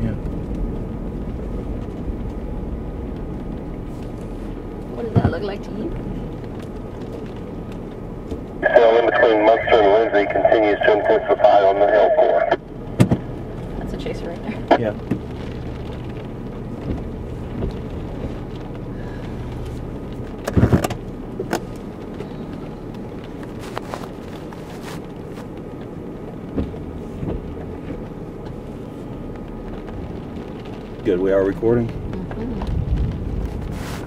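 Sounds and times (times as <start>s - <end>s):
vehicle engine running inside cabin: 0.0s - 34.0s
short knocks and thumps: 26.5s - 28.0s.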